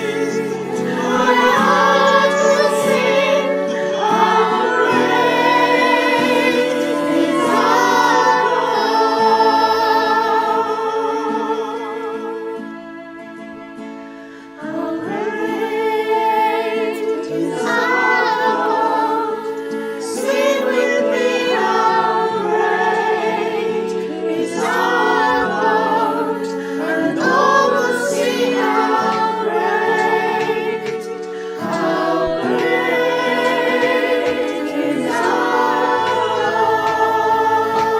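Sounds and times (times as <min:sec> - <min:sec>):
sustained chords: 0:00.0 - 0:12.2
group singing worship song: 0:00.0 - 0:37.9.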